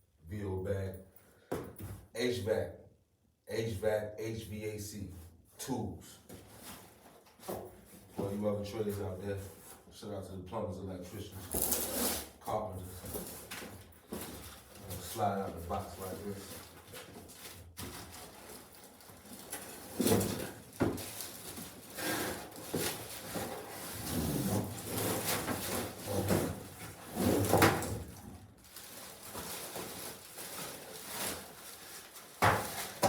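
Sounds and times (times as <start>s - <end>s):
cardboard scraping and rustling: 11.5s - 12.3s, 13.1s - 33.0s.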